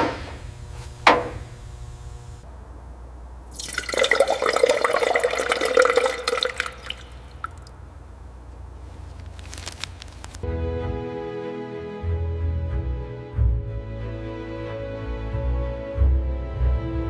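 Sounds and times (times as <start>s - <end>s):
low steady hum: 0.0s - 10.4s
water splashing and dripping: 3.5s - 7.8s.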